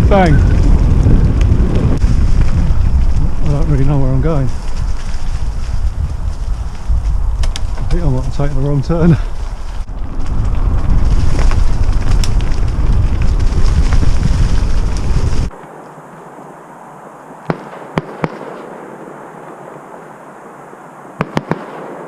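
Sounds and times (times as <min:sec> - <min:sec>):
wind rumble on microphone: 0:00.0 - 0:15.6.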